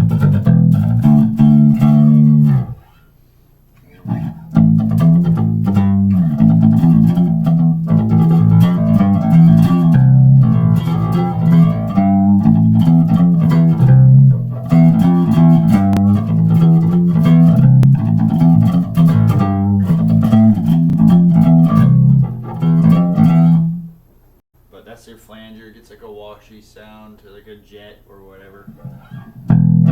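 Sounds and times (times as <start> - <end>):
electric bass with flanger: 0.0 - 2.9, 4.0 - 24.0, 28.9 - 29.9.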